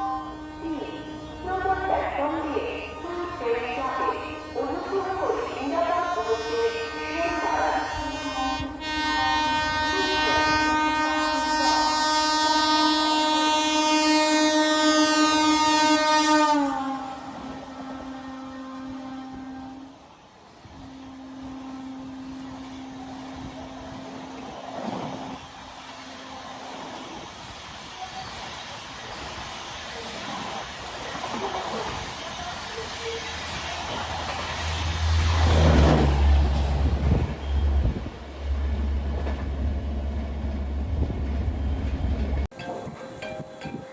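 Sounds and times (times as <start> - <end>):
train horn blast: 0.0 - 20.0, 20.7 - 27.2.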